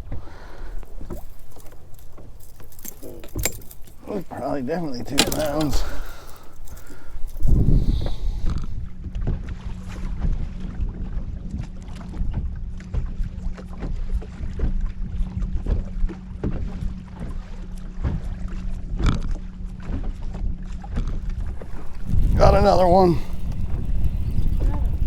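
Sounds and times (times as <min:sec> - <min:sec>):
wind buffeting microphone: 0:00.0 - 0:09.0, 0:21.3 - 0:25.0.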